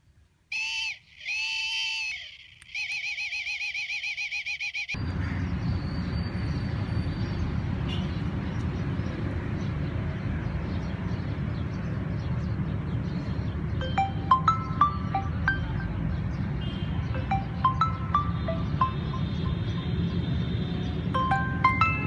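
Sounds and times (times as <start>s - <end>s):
warbling electronic alarm tone: 0.5s - 5.0s
bell-like musical notes: 13.8s - 16.1s, 17.2s - 19.8s, 21.2s - 22.0s.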